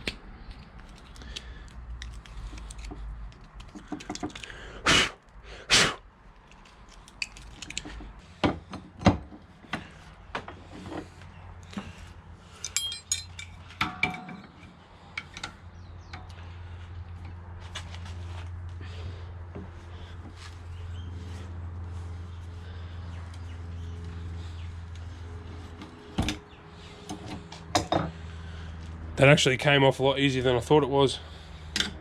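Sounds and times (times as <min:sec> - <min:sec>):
steady low hum: 0:07.6 - 0:32.0
metal tools clinking: 0:12.5 - 0:15.4.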